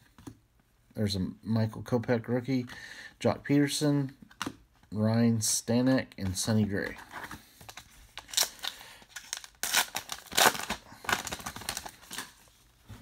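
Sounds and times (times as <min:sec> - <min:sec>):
cards rustling: 0:06.2 - 0:12.8
card pack wrapper crinkling and tearing: 0:06.9 - 0:12.6.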